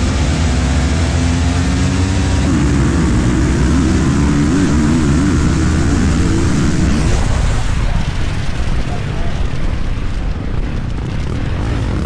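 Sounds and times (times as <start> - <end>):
dirt bike engine revving: 0.0 - 9.7
rushing air rumble: 2.4 - 12.0.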